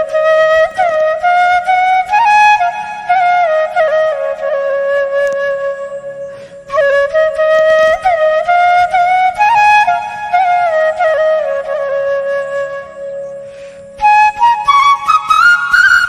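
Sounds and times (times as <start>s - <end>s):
solo flute slow melody: 0.0s - 16.0s.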